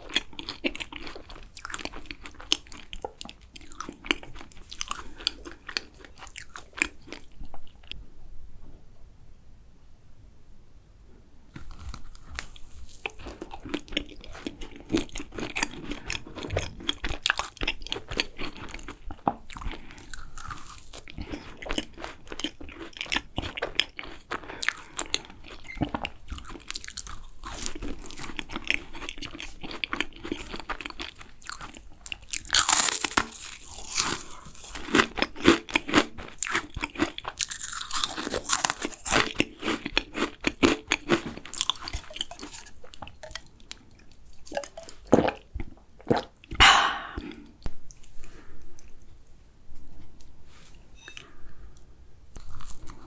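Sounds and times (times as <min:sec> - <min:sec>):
crisp bites and chewing: 0:29.2 - 0:35.0, 0:36.4 - 0:43.4
mouth clicks: 0:46.5 - 0:47.4.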